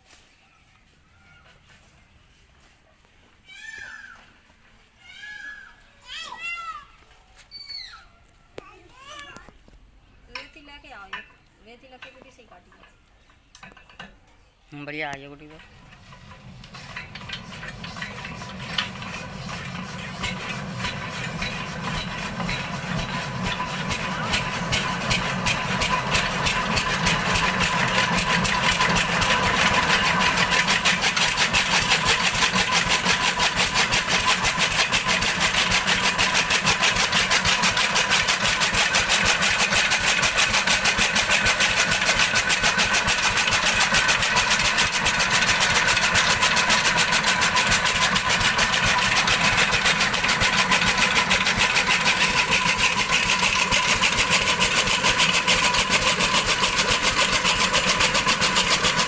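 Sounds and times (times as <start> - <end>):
diesel engine thumping: 15.5 - 59.0.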